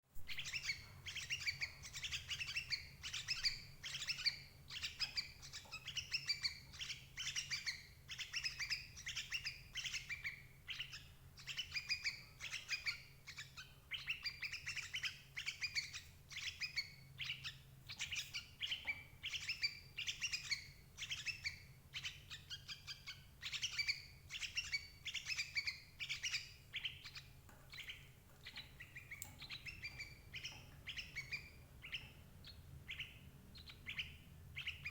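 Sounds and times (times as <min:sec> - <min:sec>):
faint low hum: 0:00.2 - 0:34.9.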